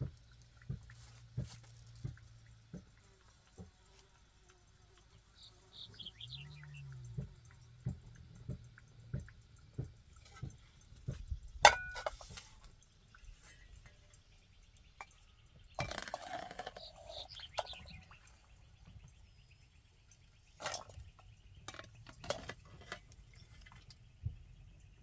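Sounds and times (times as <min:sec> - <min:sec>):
sharp knocks and clinks: 0:06.0 - 0:12.6.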